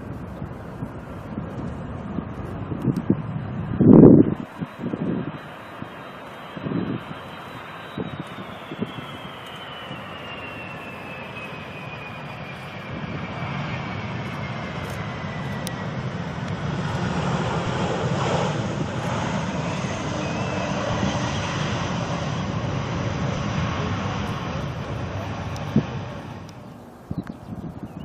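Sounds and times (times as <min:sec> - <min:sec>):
jet airliner passing over: 0:00.0 - 0:28.0.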